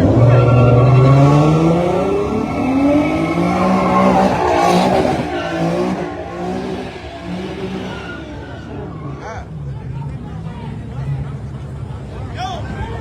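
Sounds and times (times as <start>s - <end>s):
tyre squeal: 0.0s - 9.3s
car engine revving hard: 0.0s - 9.8s.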